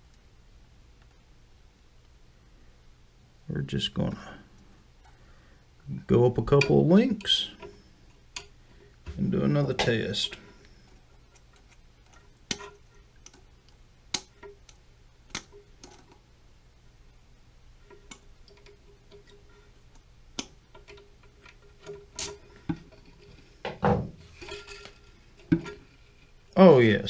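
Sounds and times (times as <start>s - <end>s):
knock: 23.7s - 24.2s.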